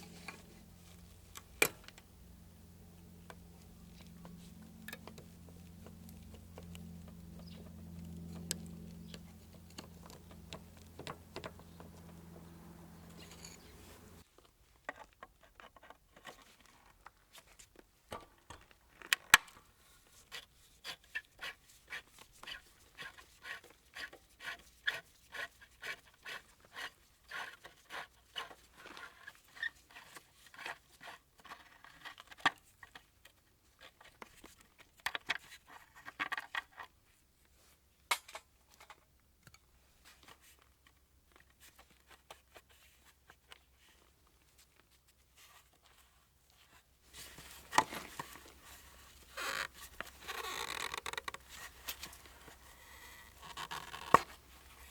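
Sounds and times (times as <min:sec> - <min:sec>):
hand tool scrapes and clicks: 0:03.3 - 0:14.2.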